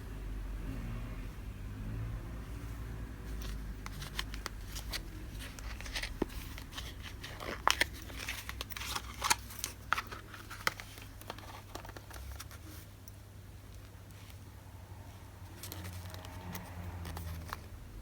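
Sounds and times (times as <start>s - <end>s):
paper crinkling and rustling: 3.2s - 12.9s, 15.4s - 17.8s.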